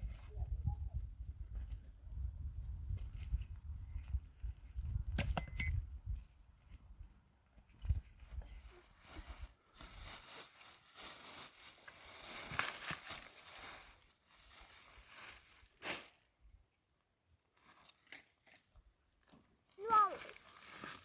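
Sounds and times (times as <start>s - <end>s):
rustling and crinkling: 2.9s - 4.8s, 6.2s - 16.3s, 17.5s - 21.0s.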